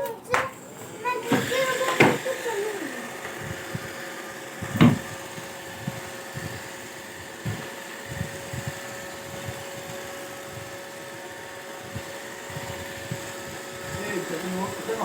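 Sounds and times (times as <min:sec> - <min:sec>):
robot vacuum whirring: 0:00.0 - 0:15.0.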